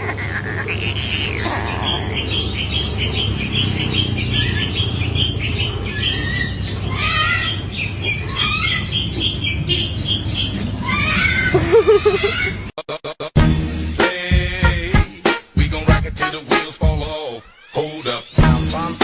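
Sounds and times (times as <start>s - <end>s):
animal squawking glides: 0.0s - 2.4s
animal chirping: 0.0s - 12.6s.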